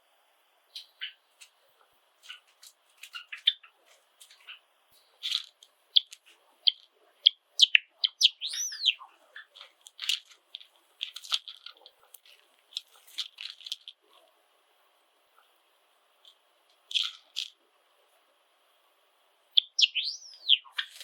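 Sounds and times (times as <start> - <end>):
sparrows chirping: 0.7 - 1.3, 2.2 - 11.8, 19.5 - 21.0.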